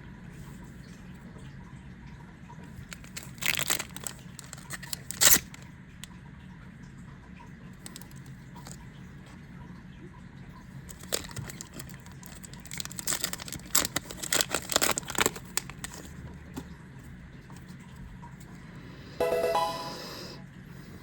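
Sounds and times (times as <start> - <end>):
wrapper crinkling: 2.8 - 5.6, 7.8 - 8.8, 10.9 - 16.2
short pitched tone: 19.2 - 20.4.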